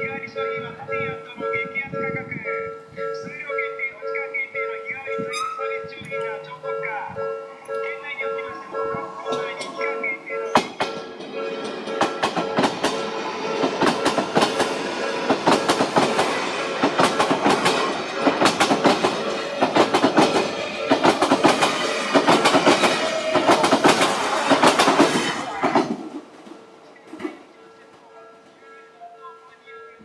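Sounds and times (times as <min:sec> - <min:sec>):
train wheels clattering over joints: 0:07.6 - 0:26.4.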